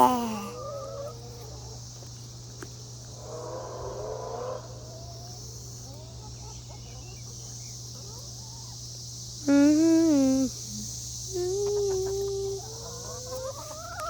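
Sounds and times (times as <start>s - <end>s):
chickens clucking: 0.0s - 2.2s, 3.2s - 8.8s, 11.4s - 14.0s
steady high-pitched hiss: 0.0s - 14.0s.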